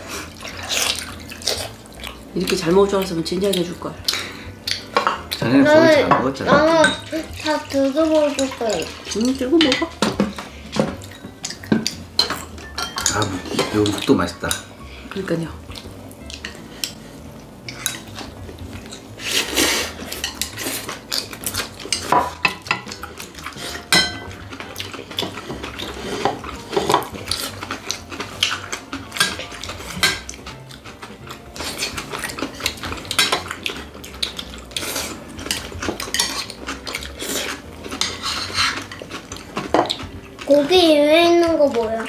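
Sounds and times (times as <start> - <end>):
eating noises: 0.0 - 6.0, 15.6 - 42.0
utensils clinking on plates: 2.4 - 15.3, 17.6 - 42.0.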